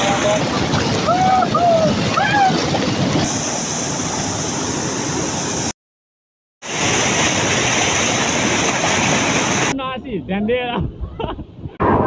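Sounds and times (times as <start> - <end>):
waterfall rushing: 0.0 - 5.7, 6.6 - 9.7.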